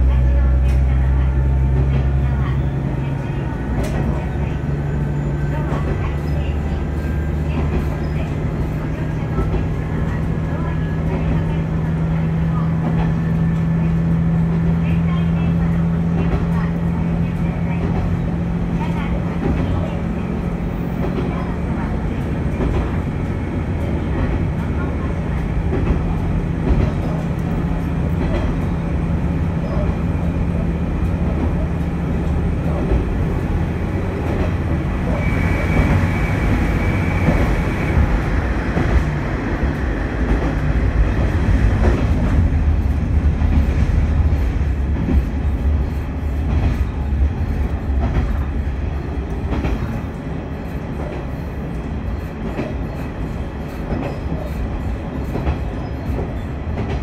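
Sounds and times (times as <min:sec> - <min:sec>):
low diesel engine drone: 0:00.0 - 0:51.9.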